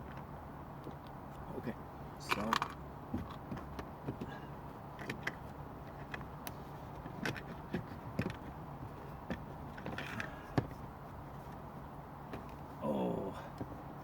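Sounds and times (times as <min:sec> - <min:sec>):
plastic parts clicking and knocking: 0:02.3 - 0:03.7.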